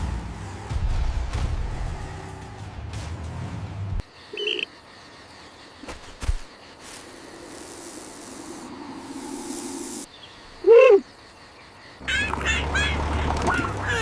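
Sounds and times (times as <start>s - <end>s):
cartoon creature calls: 12.0s - 14.0s.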